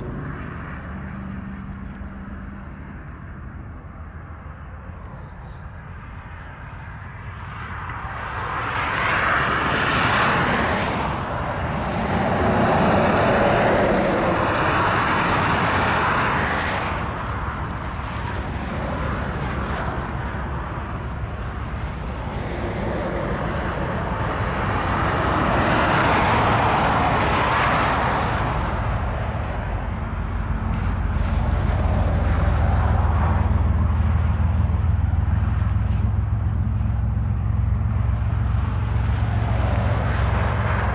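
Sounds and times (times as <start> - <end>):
wind gusting on microphone: 7.0 - 40.9
freight train rolling past: 9.5 - 40.9.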